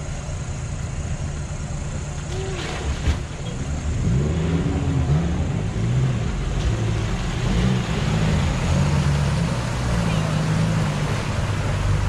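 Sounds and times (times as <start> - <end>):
off-road vehicle engine revving: 3.5 - 12.0.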